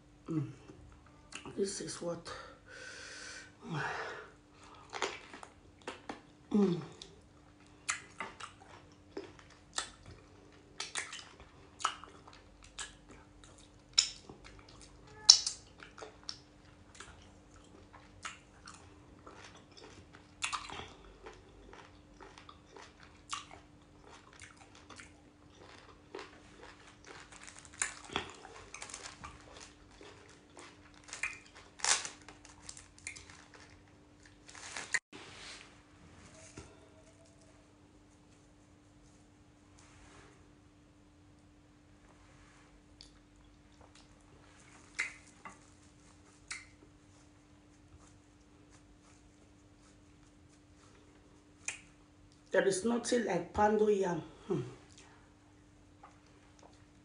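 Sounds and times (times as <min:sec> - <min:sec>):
faint steady hum: 0:00.0 - 0:57.0
wet mouth smacks chewing: 0:07.8 - 0:10.2, 0:10.8 - 0:27.2, 0:30.5 - 0:31.5, 0:44.8 - 0:45.6, 0:46.3 - 0:46.8, 0:51.6 - 0:52.4.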